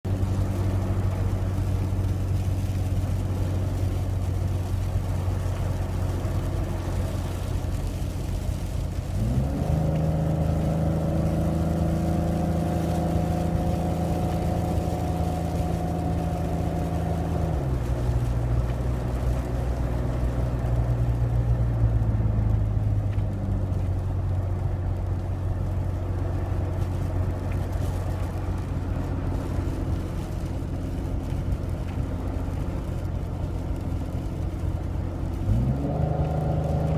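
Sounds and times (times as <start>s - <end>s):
car engine hum: 0.0s - 36.9s
road noise: 0.0s - 36.9s.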